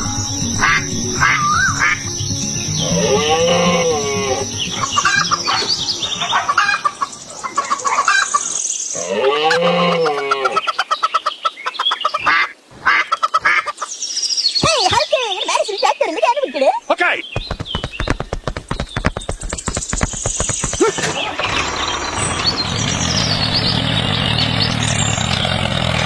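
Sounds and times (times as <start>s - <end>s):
chickens clucking: 0.6s - 14.0s, 20.8s - 23.2s
rooster crowing: 9.1s - 10.6s.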